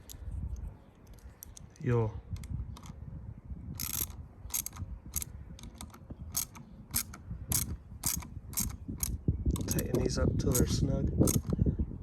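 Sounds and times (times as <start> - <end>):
socket ratchet clicking: 0.0 - 0.2, 1.1 - 1.7, 2.3 - 3.0, 3.8 - 11.6.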